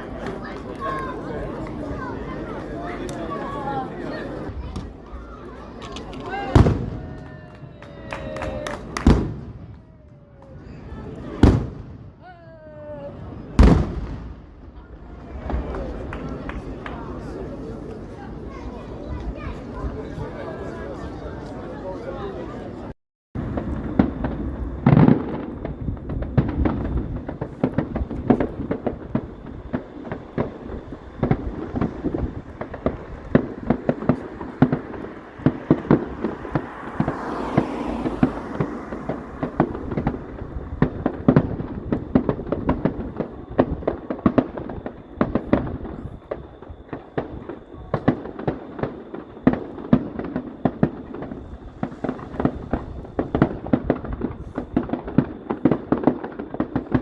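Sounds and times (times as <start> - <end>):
fireworks bangs and crackles: 0.0 - 57.0
rising firework hiss: 23.4 - 57.0.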